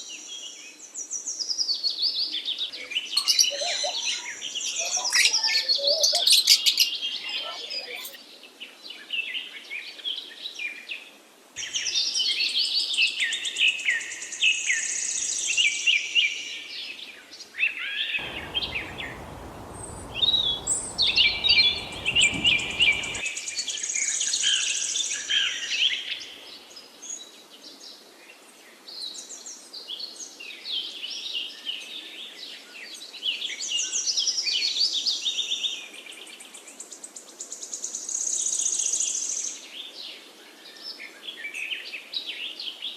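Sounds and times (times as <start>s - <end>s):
low rushing noise: 18.2s - 23.2s
songbirds chirping and trilling: 18.2s - 23.2s.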